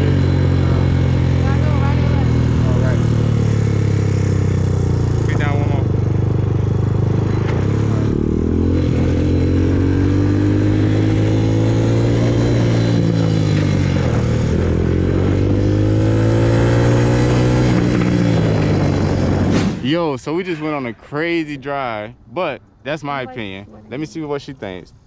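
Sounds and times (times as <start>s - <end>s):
dirt bike engine under throttle: 0.0s - 19.9s.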